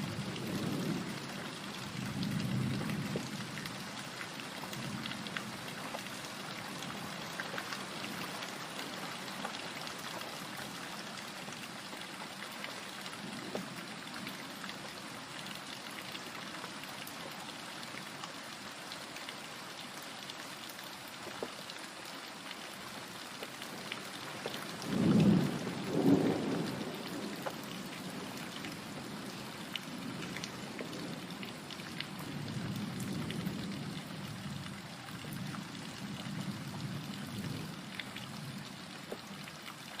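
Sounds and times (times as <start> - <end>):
steady rain pattering: 0.0 - 40.0
thunder rumbling: 24.8 - 27.5.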